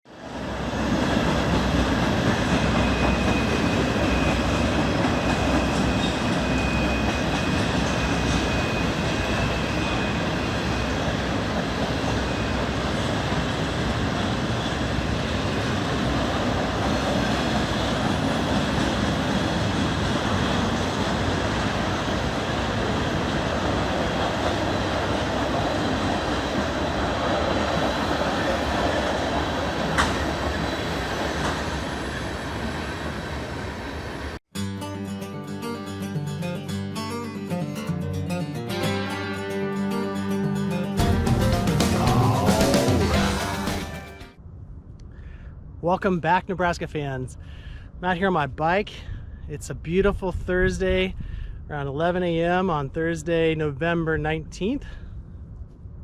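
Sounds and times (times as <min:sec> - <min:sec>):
train rumbling on rails: 0:00.1 - 0:34.4, 0:41.0 - 0:44.5
high wheel whine: 0:00.3 - 0:34.4.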